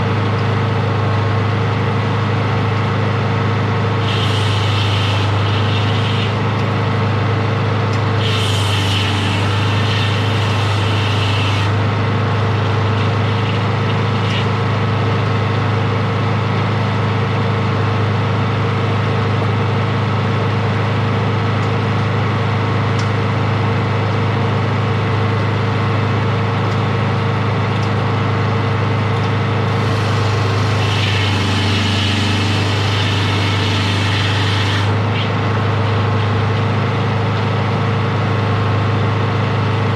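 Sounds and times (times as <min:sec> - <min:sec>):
sawmill engine running: 0:00.0 - 0:39.9
hissing: 0:04.0 - 0:06.4, 0:29.7 - 0:34.9.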